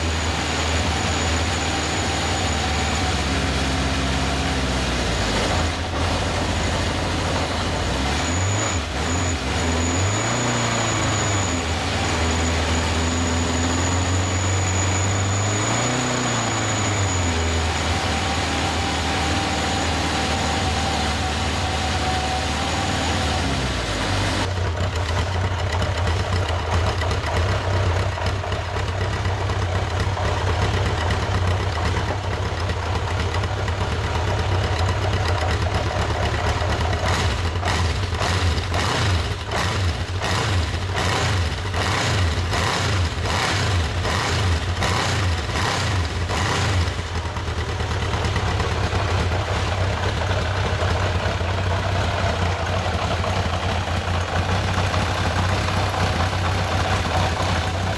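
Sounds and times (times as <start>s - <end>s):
motorcycle engine idling: 24.4s - 57.9s.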